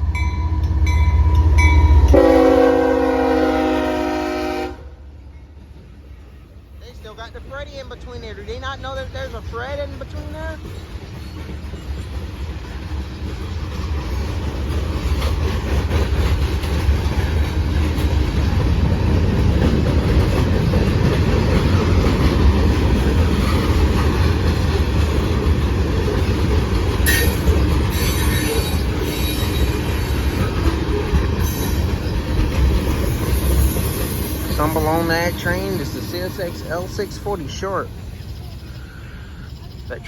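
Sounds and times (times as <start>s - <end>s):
freight train rumbling past: 0.0s - 40.0s
high wheel screeches: 27.0s - 30.6s.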